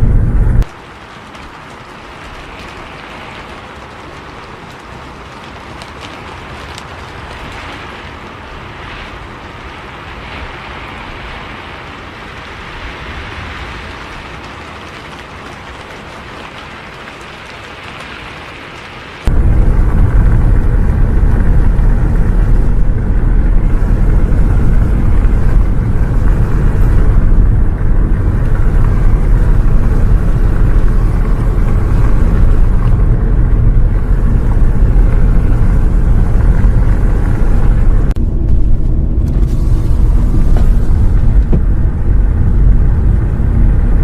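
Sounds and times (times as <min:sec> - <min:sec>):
bus engine and road noise: 0:00.0 - 0:44.0.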